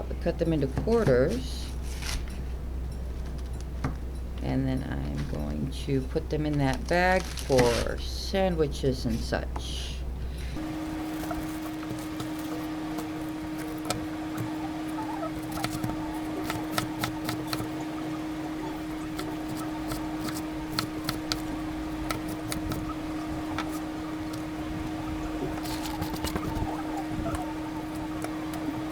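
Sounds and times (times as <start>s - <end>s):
steady hum: 0.0s - 28.9s.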